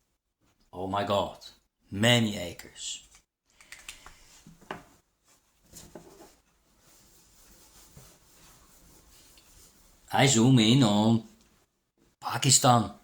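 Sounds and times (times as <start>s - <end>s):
faint clicks: 3.1s - 4.2s
light rubbing and rustling: 4.1s - 10.1s.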